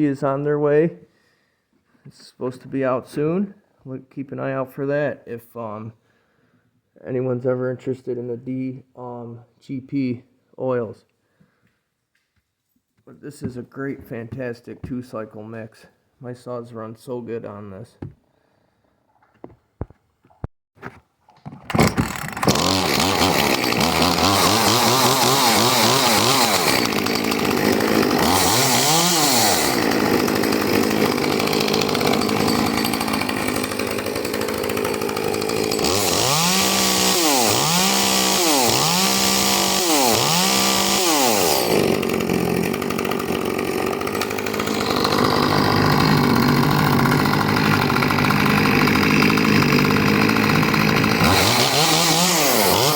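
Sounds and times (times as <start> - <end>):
chainsaw starter pulls: 21.4 - 52.9
chainsaw revving: 21.7 - 52.9.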